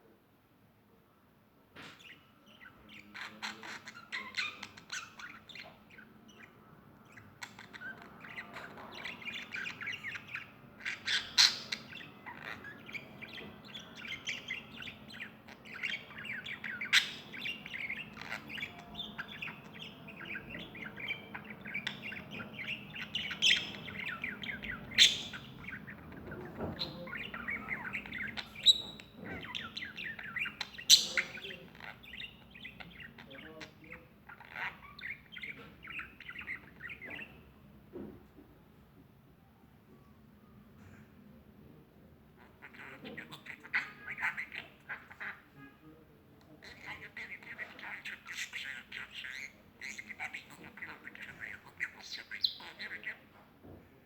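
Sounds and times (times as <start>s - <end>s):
birds chirping and squawking: 1.8s - 38.4s, 42.1s - 53.8s.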